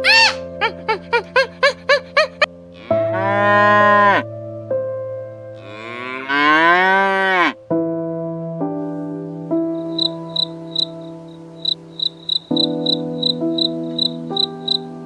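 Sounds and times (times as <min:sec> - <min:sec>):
soft piano music: 0:00.0 - 0:15.0
cattle mooing: 0:02.8 - 0:04.2, 0:05.6 - 0:07.6.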